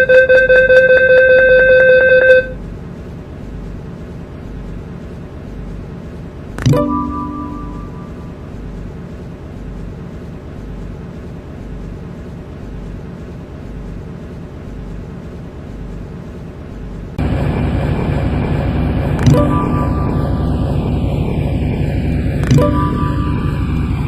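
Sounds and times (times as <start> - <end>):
whine falling in pitch: 0.0 - 2.6, 6.6 - 8.8, 17.2 - 24.0
train interior rumble: 0.0 - 24.0.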